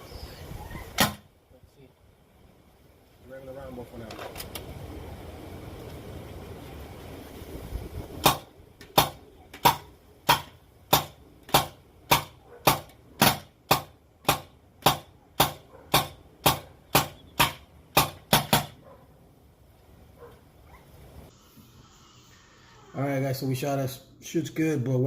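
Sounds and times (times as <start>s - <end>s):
paintball marker shots: 8.2s - 18.8s.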